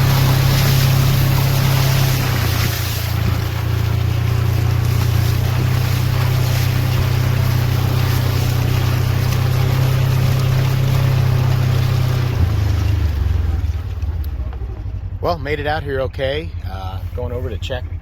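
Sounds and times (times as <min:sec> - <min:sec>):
constant rushing noise: 0:00.0 - 0:16.0
utility vehicle engine droning: 0:00.0 - 0:18.0.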